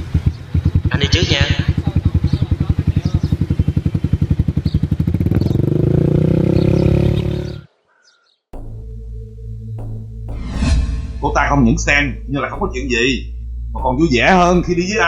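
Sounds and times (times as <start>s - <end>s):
small motorcycle engine accelerating: 0.2s - 7.6s
background music: 8.6s - 15.0s.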